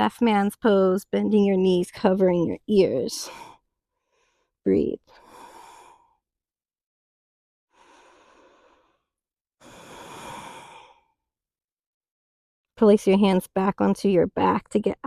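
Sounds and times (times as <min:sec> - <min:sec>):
person breathing slowly: 0:03.2 - 0:06.2, 0:07.7 - 0:11.2.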